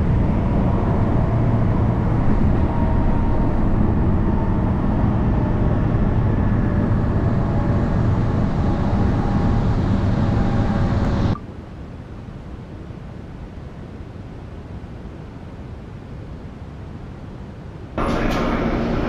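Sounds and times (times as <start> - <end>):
train wheels rumbling on rail: 0.0 - 11.4, 18.0 - 19.0
faint steady whine: 0.0 - 19.0.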